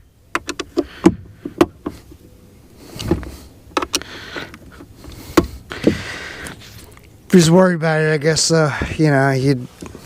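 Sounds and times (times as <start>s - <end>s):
plastic parts clicking and knocking: 0.3s - 2.0s, 3.0s - 6.0s.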